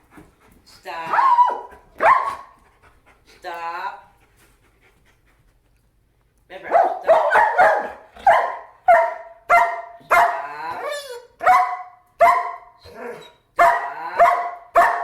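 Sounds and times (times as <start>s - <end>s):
dog barking: 1.1s - 2.5s, 6.7s - 10.5s, 11.4s - 15.0s.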